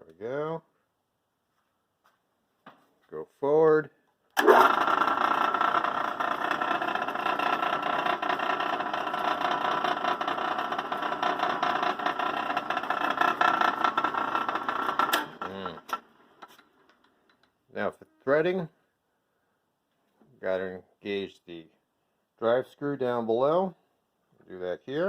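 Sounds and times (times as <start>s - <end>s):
metal lathe whirring: 4.4s - 15.4s.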